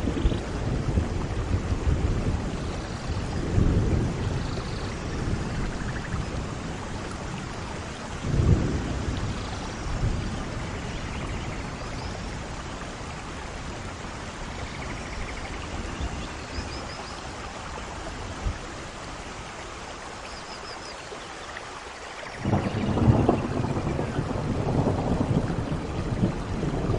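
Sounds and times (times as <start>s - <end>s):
thunder rumbling: 0.0s - 13.2s, 22.3s - 26.9s
steady rain falling: 0.0s - 26.9s.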